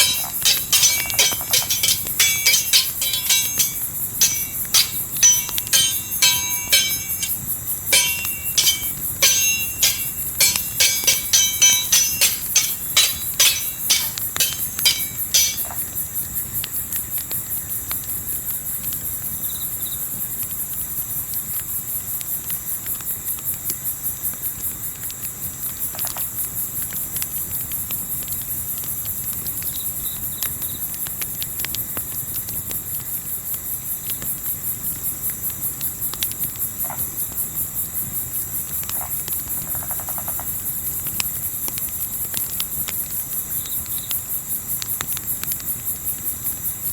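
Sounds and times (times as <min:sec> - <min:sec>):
ringing metallic strikes: 0:00.0 - 0:15.8.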